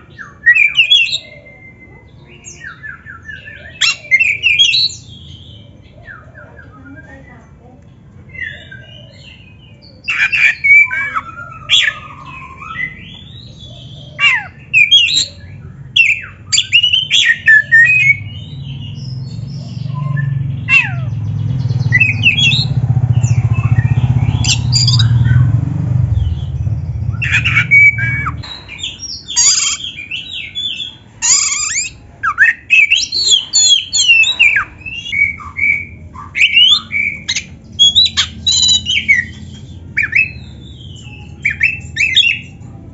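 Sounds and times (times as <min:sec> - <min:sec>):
bird singing whistles: 0:00.1 - 0:05.2, 0:10.0 - 0:18.4, 0:21.8 - 0:25.5, 0:26.2 - 0:42.6
bird squawking: 0:08.3 - 0:21.2, 0:21.9 - 0:25.5, 0:26.3 - 0:42.8
low rumble: 0:18.2 - 0:29.4.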